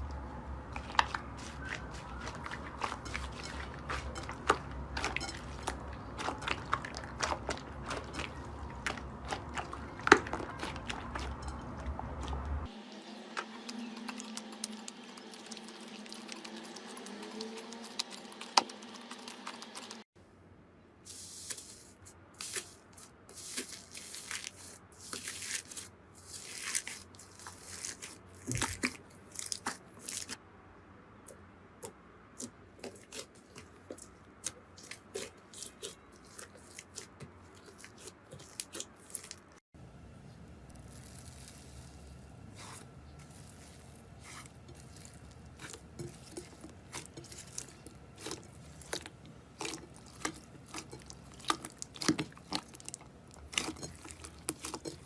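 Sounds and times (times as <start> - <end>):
slime squishing and crackling: 0.6 - 12.7, 23.3 - 30.4, 32.4 - 39.6, 40.7 - 55.0.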